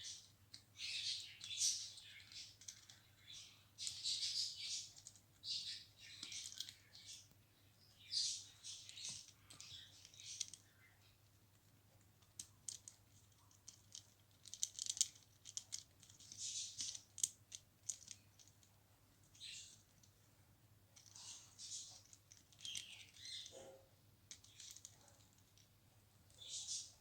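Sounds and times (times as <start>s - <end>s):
parrot beak and toys clicking: 0.5s - 3.0s, 3.8s - 7.3s, 8.7s - 10.6s, 12.2s - 18.7s, 21.0s - 25.7s.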